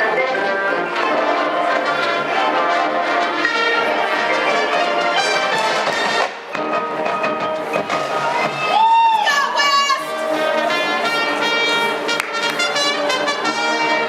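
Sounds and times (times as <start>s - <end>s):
brass chords: 0.0s - 8.7s, 9.5s - 14.0s
marching percussion: 1.0s - 8.8s.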